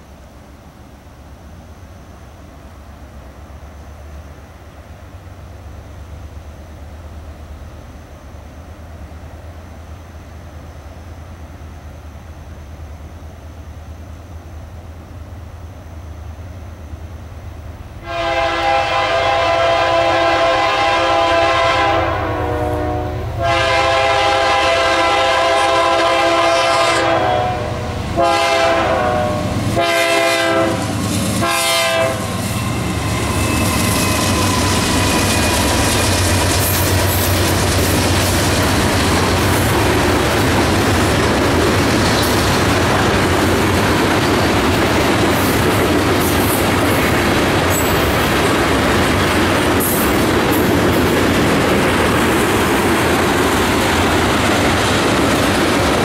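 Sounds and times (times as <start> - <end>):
locomotive air horn: 18.0 - 35.5
wheels clicking over rail joints: 32.4 - 56.0.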